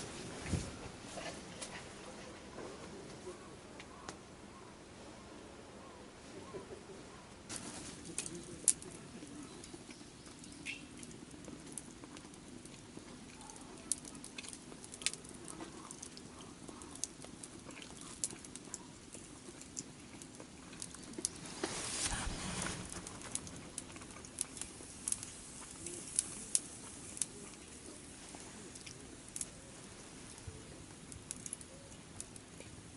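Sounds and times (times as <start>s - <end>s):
campfire crackling: 7.5s - 32.9s.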